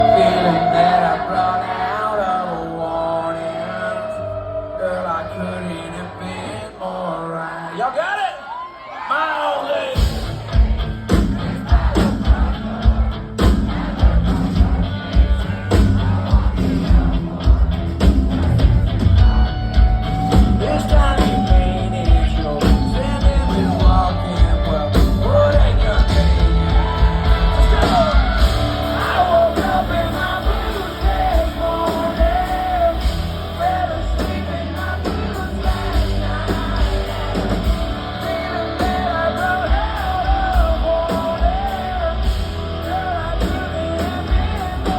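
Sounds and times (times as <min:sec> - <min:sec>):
live country-rock band: 0:00.0 - 0:06.6, 0:09.6 - 0:44.9
drums keeping a beat: 0:10.0 - 0:44.9.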